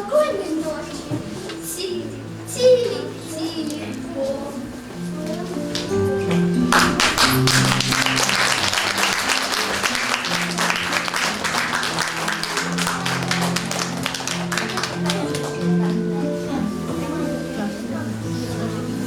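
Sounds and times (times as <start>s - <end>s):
slow background music: 0.0s - 19.0s
audience applauding: 6.7s - 15.8s.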